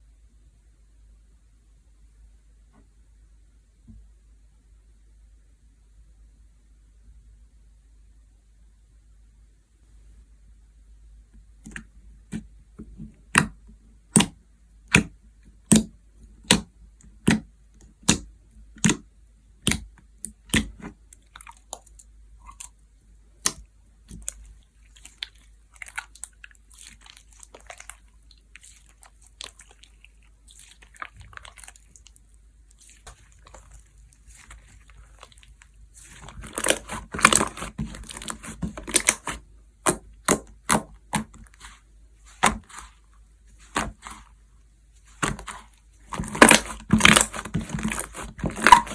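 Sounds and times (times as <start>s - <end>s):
hands squishing slime: 11.6s - 48.9s
sticky crackling: 19.6s - 44.4s, 45.0s - 48.9s.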